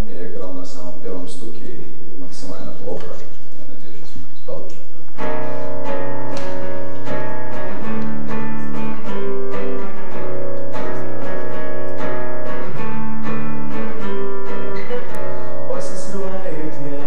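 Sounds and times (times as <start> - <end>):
acoustic guitar strumming chords: 5.2 - 17.0.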